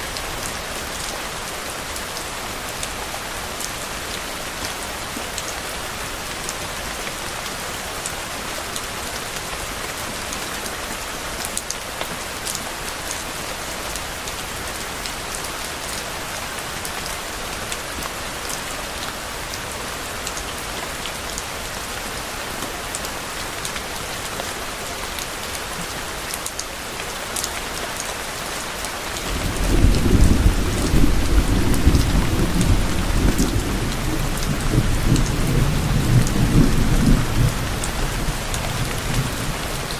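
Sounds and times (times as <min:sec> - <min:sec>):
rain falling: 0:00.0 - 0:39.9
rumble of thunder: 0:29.3 - 0:39.9.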